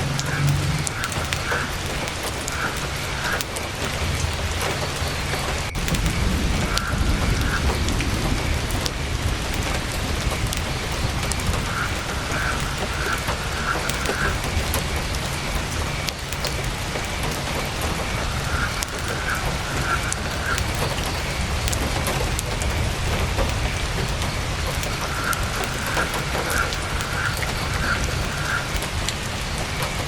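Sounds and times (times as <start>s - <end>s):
low rumble: 0.0s - 2.2s, 3.9s - 29.7s
heavy rain on a tent: 0.0s - 30.0s
sharp clicks: 0.0s - 30.0s.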